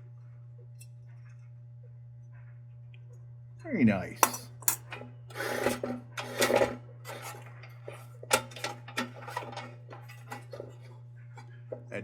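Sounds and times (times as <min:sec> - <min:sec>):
steady low hum: 0:00.0 - 0:12.0
sheet metal scraping: 0:04.3 - 0:11.6.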